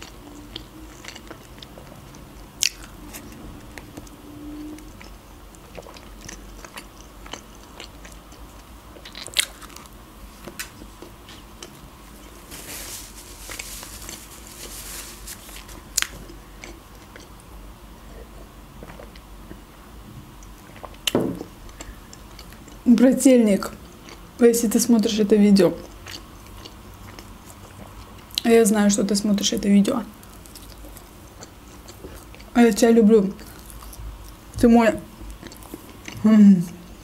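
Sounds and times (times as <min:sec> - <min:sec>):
person biting and chewing food: 0:00.0 - 0:03.4, 0:04.8 - 0:17.4, 0:30.2 - 0:32.5, 0:33.4 - 0:34.5.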